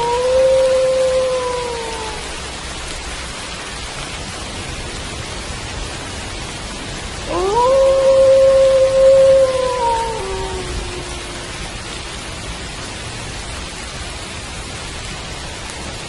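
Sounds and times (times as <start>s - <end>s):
wolf howling: 0.0s - 2.5s, 7.3s - 12.0s
steady rain: 0.0s - 16.0s.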